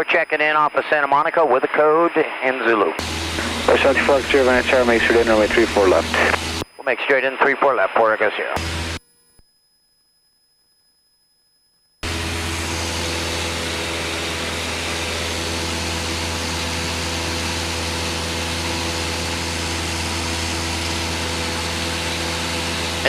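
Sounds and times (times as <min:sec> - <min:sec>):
light aircraft engine drone: 0:03.0 - 0:06.6, 0:12.0 - 0:23.0.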